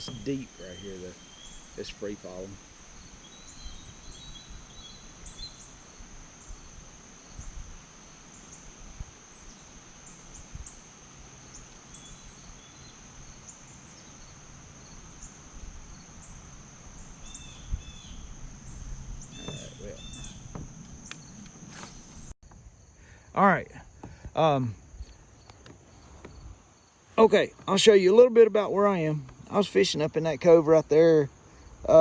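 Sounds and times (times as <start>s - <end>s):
insects droning: 0.0s - 32.0s
low bumps: 17.5s - 30.1s.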